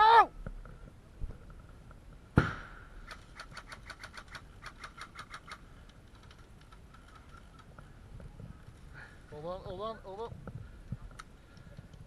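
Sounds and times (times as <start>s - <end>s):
airsoft gun shots: 2.4s - 3.2s.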